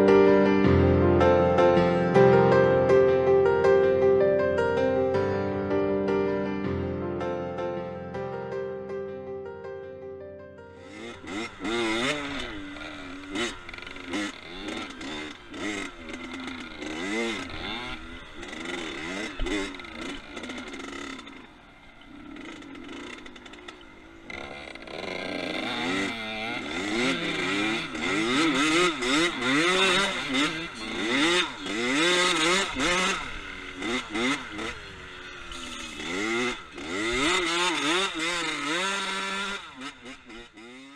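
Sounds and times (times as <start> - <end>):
dirt bike engine revving: 10.7 - 40.9.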